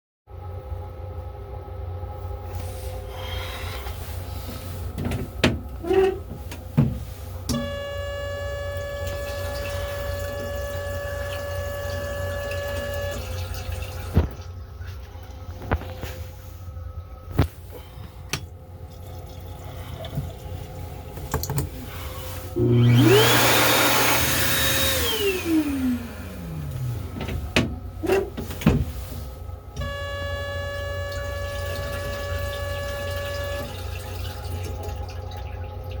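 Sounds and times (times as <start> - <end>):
multi-tone hum: 0.3 - 36.0
electric flush pump whining: 2.3 - 16.0, 17.3 - 36.0
toilet flush click: 7.5 - 14.4, 30.7 - 35.2.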